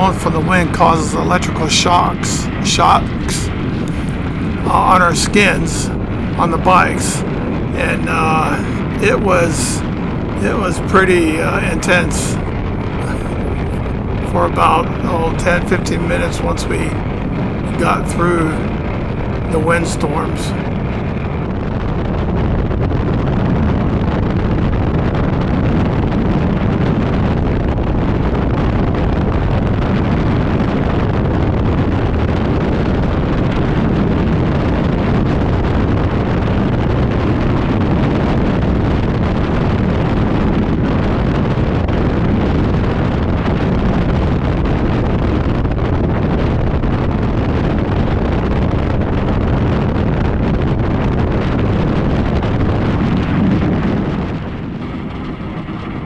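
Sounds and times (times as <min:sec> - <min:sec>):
wind buffeting microphone: 0:05.6 - 0:06.5, 0:07.1 - 0:10.7, 0:20.1 - 0:56.0.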